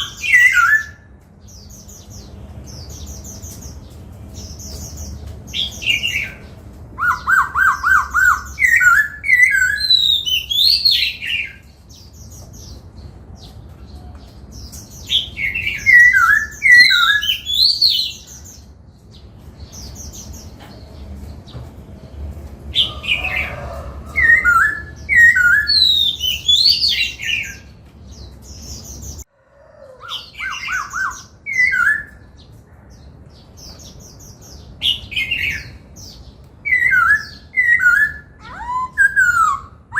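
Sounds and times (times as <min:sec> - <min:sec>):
bird singing whistled phrases: 0:00.0 - 0:01.1, 0:15.2 - 0:18.2, 0:24.3 - 0:27.6, 0:36.7 - 0:39.9.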